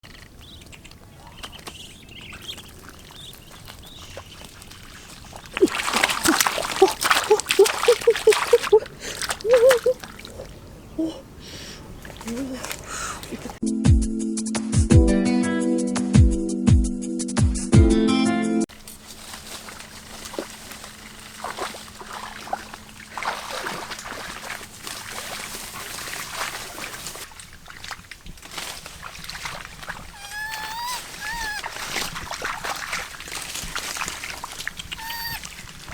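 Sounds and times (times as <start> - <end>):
birds chirping: 0.0 - 13.6, 30.1 - 31.7, 34.8 - 35.7
water sloshing and splashing: 0.0 - 13.6, 18.7 - 35.9.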